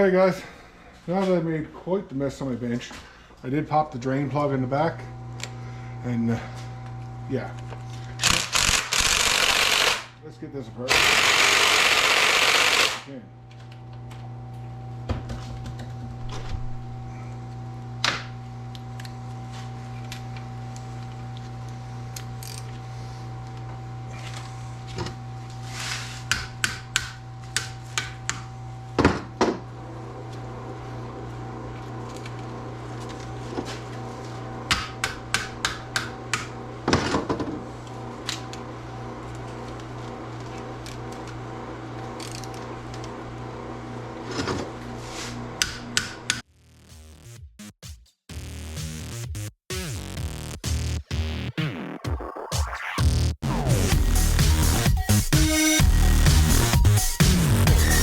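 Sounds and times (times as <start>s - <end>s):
steady low hum: 0.0s - 46.4s.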